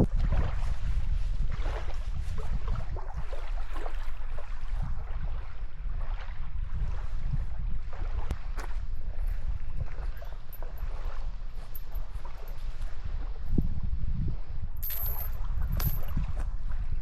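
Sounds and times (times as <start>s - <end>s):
water splashing around boat: 0.0s - 13.4s
wind rumbling on microphone: 0.0s - 17.0s.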